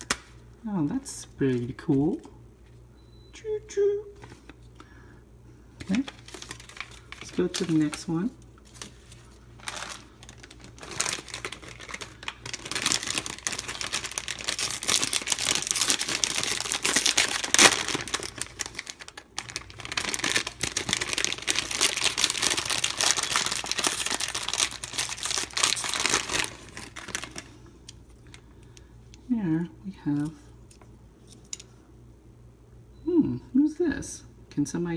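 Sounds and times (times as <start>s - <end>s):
plastic wrapper crinkling and tearing: 5.8s - 28.8s.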